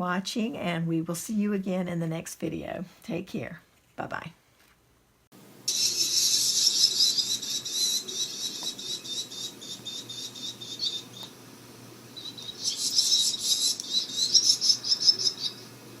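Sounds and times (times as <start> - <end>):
rapid high-pitched chirping: 5.7 - 11.3, 12.2 - 15.7.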